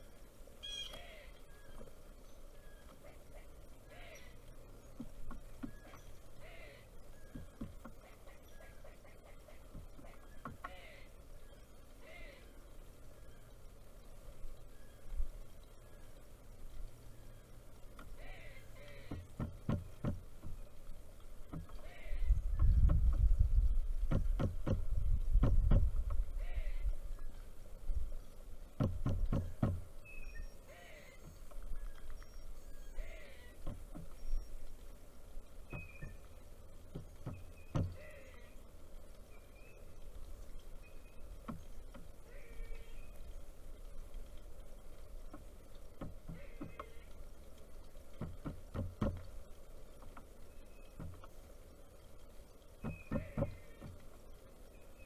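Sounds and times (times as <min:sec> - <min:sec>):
faint bird call: 0:00.6 - 0:13.8, 0:17.0 - 0:19.4, 0:21.5 - 0:22.8, 0:26.3 - 0:27.6, 0:29.3 - 0:34.8, 0:37.0 - 0:40.1, 0:42.2 - 0:43.4, 0:46.2 - 0:47.4, 0:52.8 - 0:55.0
woodpecker knocking: 0:02.7 - 0:12.3, 0:17.2 - 0:27.4, 0:28.6 - 0:38.6, 0:44.0 - 0:51.4, 0:52.6 - 0:54.4.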